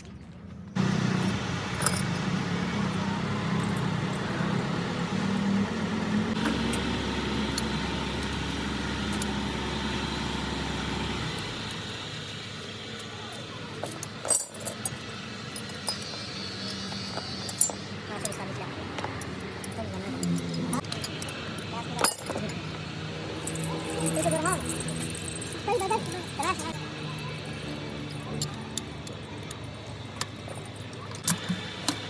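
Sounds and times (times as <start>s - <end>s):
vehicle engine running: 0.4s - 32.0s
deep drone: 0.8s - 12.6s
sharp metallic clinks: 13.9s - 18.6s, 19.2s - 31.3s.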